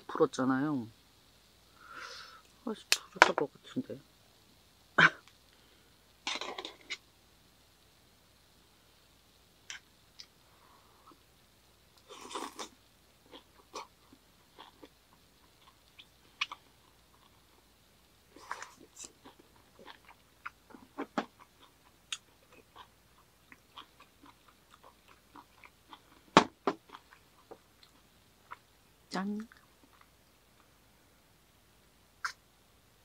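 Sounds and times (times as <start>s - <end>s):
chewing and biting: 18.4s - 22.9s, 23.5s - 26.2s.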